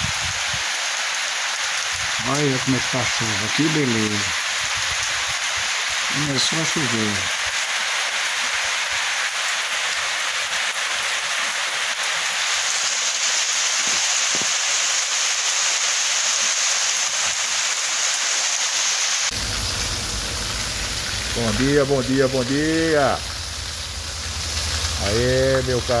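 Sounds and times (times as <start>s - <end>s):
steady rain falling: 0.0s - 26.0s
low rumble: 19.3s - 22.6s, 23.2s - 25.2s.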